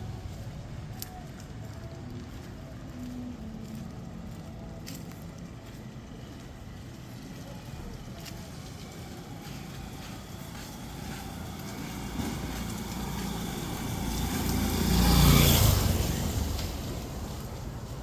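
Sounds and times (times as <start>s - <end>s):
motor vehicle driving past: 8.5s - 18.0s.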